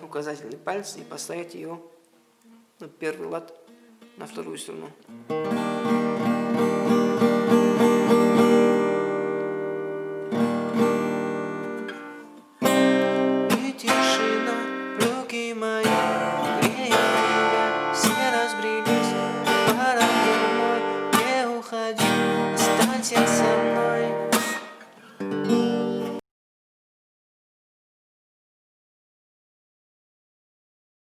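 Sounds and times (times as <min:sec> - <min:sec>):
acoustic guitar strumming chords: 0:05.1 - 0:26.2.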